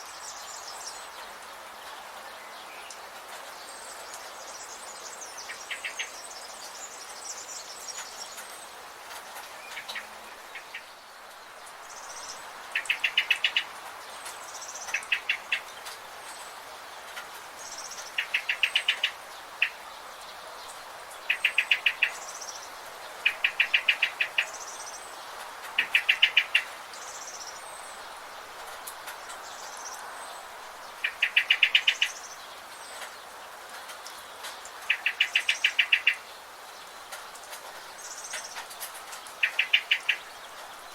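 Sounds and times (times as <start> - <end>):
background hiss: 0.0 - 40.9.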